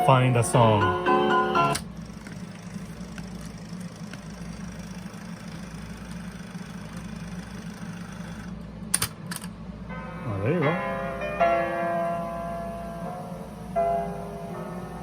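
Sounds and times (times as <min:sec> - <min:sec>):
tape hiss: 0:00.0 - 0:08.6, 0:09.8 - 0:15.0
cassette tape winding whir: 0:00.0 - 0:11.5.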